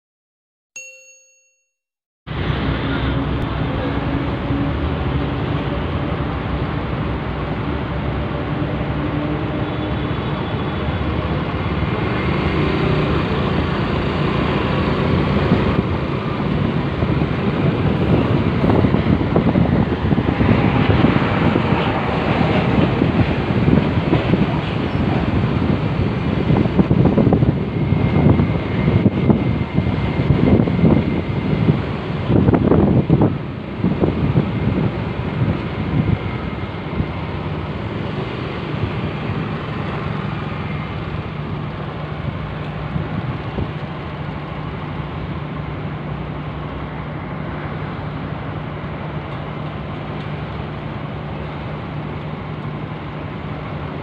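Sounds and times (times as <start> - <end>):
wind rumble on microphone: 13.1 - 54.0.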